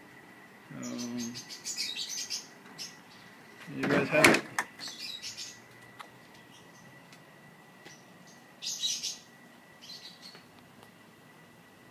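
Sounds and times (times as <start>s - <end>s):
small birds chirping: 0.7s - 3.8s, 4.8s - 7.1s, 7.8s - 10.5s.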